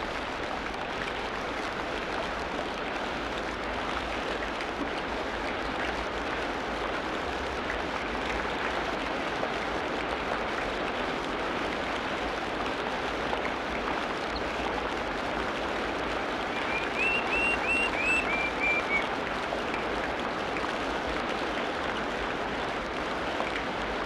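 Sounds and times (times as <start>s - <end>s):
faint short calls: 16.5s - 19.1s.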